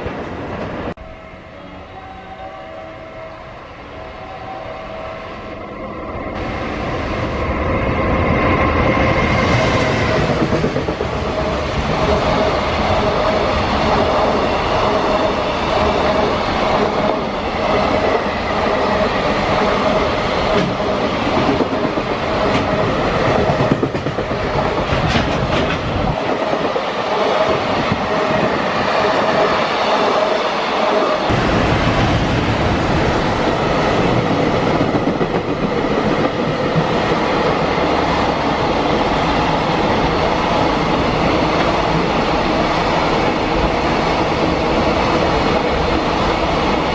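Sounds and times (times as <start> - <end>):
train wheels clattering: 20.5 - 28.4.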